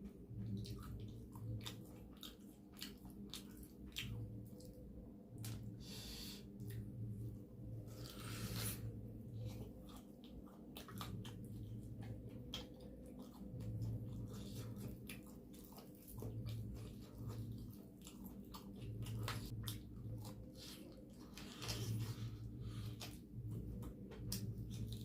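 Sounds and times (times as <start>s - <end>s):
person chewing food: 0.0s - 25.0s
low hum: 4.0s - 25.0s.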